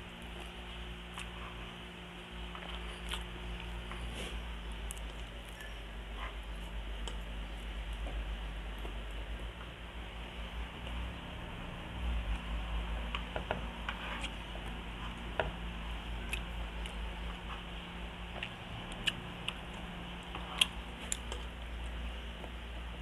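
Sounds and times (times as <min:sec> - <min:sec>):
steady low hum: 0:00.0 - 0:23.0
chewing with mouth clicks: 0:00.2 - 0:01.6, 0:02.5 - 0:04.1, 0:16.2 - 0:22.6.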